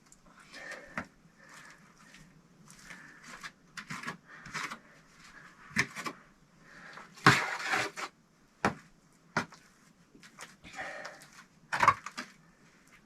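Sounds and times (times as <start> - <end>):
scraping on brick stove: 6.8 - 8.2.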